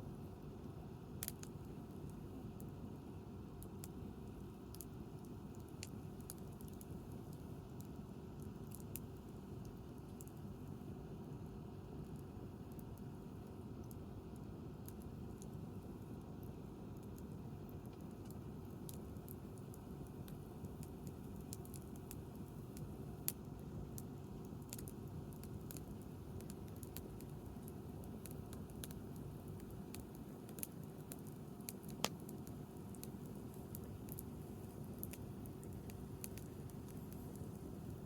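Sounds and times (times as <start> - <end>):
campfire crackling: 1.2 - 38.0
loud campfire pops: 24.0 - 38.0.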